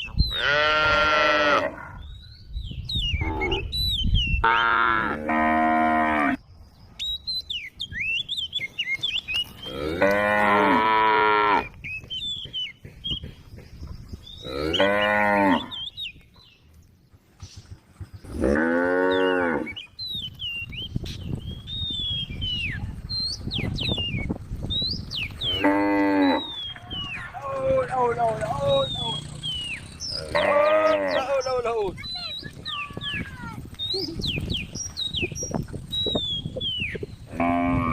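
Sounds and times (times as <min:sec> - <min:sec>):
cows mooing: 0:00.3 - 0:02.0, 0:04.4 - 0:06.4, 0:09.6 - 0:11.8, 0:14.4 - 0:15.8, 0:18.3 - 0:19.8, 0:25.4 - 0:26.7, 0:27.8 - 0:31.5, 0:37.3 - 0:37.9.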